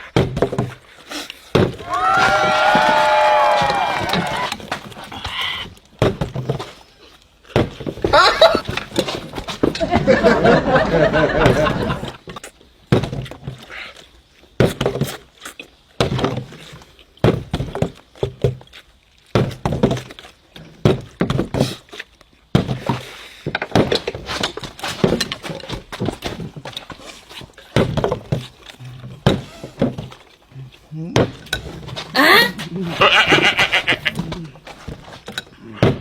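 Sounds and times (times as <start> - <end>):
plastic bottles thunking on table: 0.1 - 0.8, 1.5 - 4.9, 6.0 - 6.8, 20.7 - 21.8, 22.5 - 27.0, 27.7 - 30.2.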